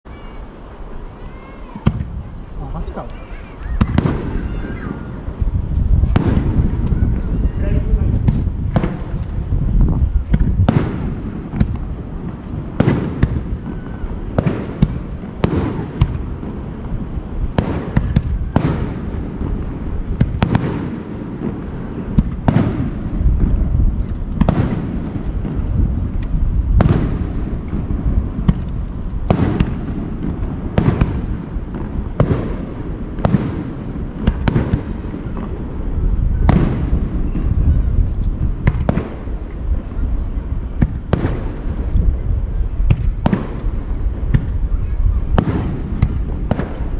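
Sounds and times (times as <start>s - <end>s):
low rumble: 3.8s - 12.8s.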